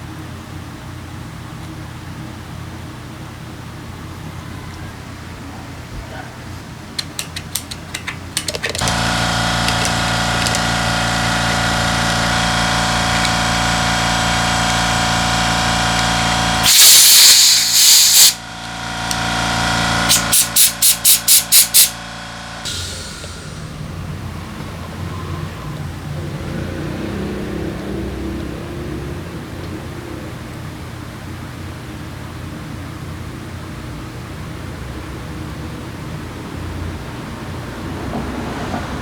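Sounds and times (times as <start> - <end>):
air compressor running: 7.1 - 28.2
compressed air hissing: 8.8 - 24.1.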